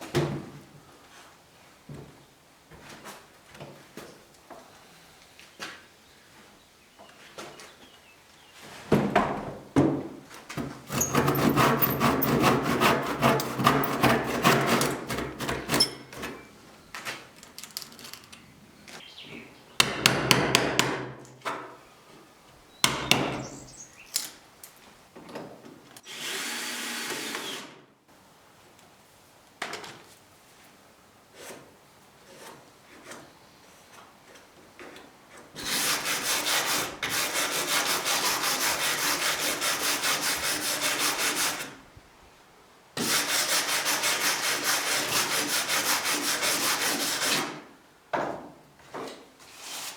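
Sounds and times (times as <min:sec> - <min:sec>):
woodworking tool scraping wood: 0:10.6 - 0:16.5, 0:31.3 - 0:33.3, 0:35.6 - 0:41.7, 0:43.0 - 0:47.6.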